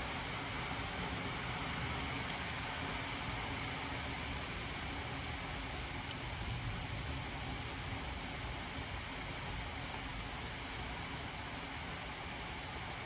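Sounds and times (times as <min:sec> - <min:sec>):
heavy rain pouring: 0:00.0 - 0:13.0
drops ticking nearby: 0:05.0 - 0:06.6.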